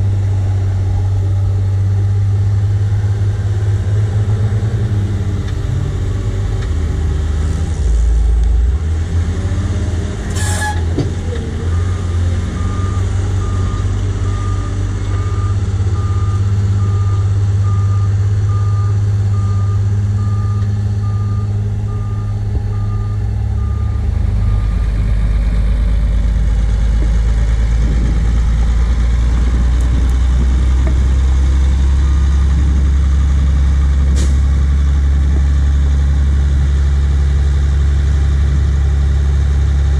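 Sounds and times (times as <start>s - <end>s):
heavy diesel engine under load: 0.0s - 39.9s
reversing alarm beeping: 11.7s - 25.0s.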